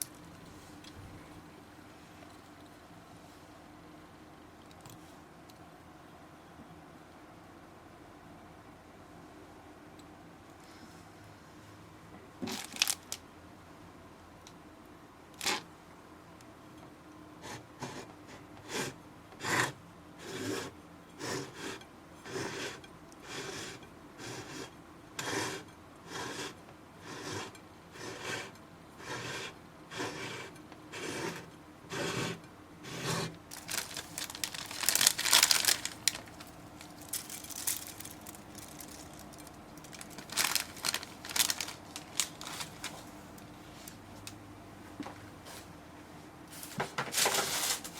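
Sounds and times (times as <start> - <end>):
slime squishing and crackling: 12.5 - 13.2, 33.5 - 43.1.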